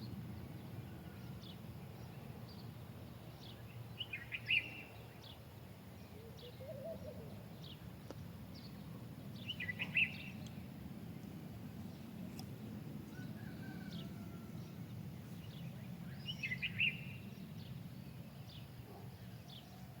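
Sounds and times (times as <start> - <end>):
songbird singing: 0.0 - 20.0
bird chirps: 8.6 - 10.6, 14.7 - 17.5.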